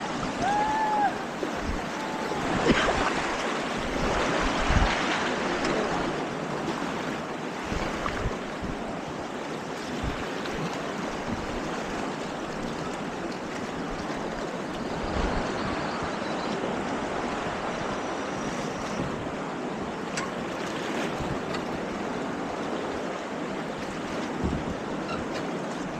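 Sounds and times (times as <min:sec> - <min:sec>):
river rapids rushing: 0:00.0 - 0:06.5
wind on microphone: 0:00.0 - 0:07.0, 0:07.6 - 0:19.9, 0:23.9 - 0:25.3.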